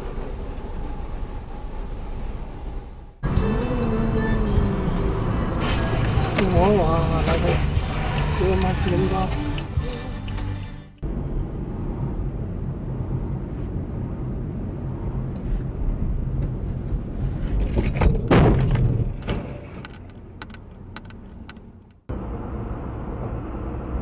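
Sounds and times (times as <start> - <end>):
car road noise: 0.0 - 24.0
loud collision crash: 18.0 - 19.8.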